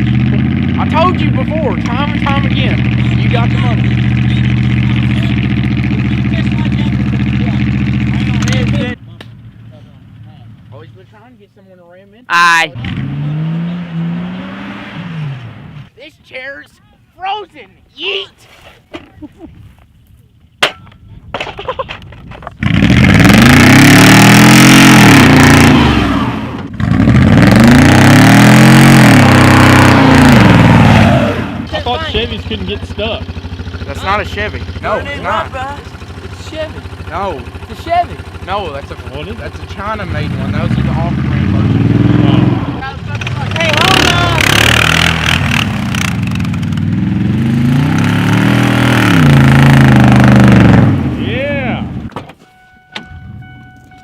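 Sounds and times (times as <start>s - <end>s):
vehicle engine revving: 0.0s - 11.2s, 12.7s - 16.0s, 22.5s - 52.2s.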